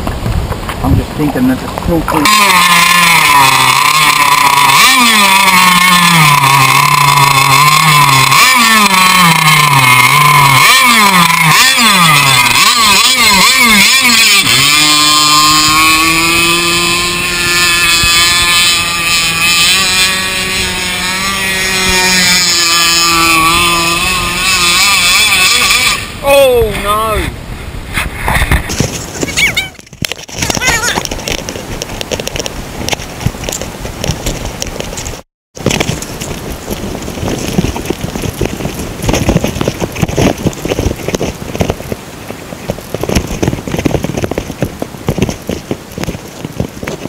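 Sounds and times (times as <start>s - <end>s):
small two-stroke engine revving: 2.1s - 27.3s.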